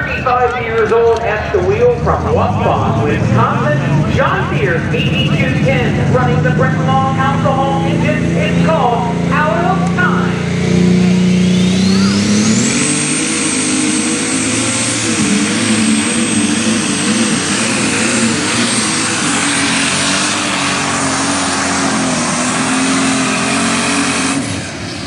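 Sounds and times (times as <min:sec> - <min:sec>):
tractor engine at full power: 0:00.0 - 0:25.0
turbo whine: 0:00.0 - 0:25.0.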